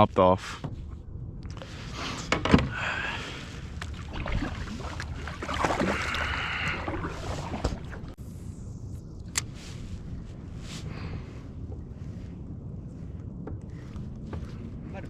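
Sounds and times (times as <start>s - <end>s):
steady low rumble: 0.0s - 15.0s
water noise: 2.7s - 9.4s.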